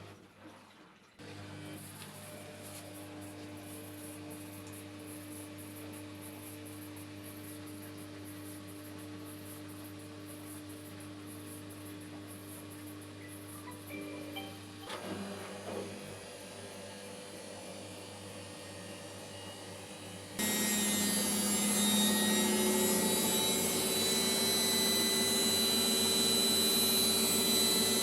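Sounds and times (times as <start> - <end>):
loud machine running: 20.4 - 28.0.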